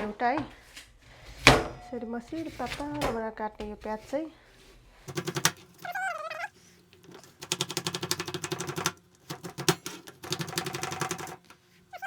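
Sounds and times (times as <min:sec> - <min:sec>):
knife chopping on cutting board: 0:05.1 - 0:05.7.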